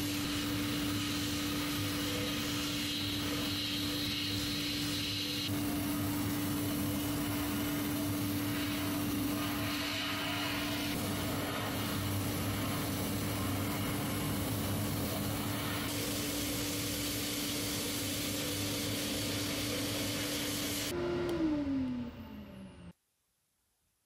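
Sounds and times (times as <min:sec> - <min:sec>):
hiss: 0:00.0 - 0:20.9.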